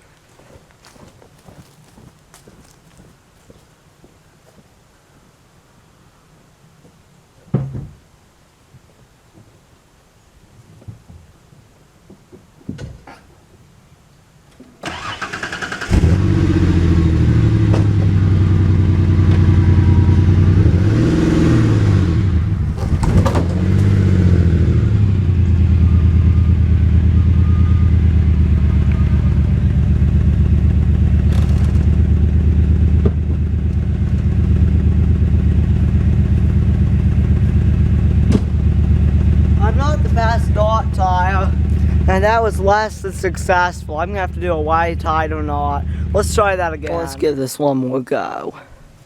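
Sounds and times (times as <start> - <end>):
vehicle engine cranking and starting: 14.8 - 20.7, 21.4 - 46.4
engine revving and idling: 14.9 - 46.9.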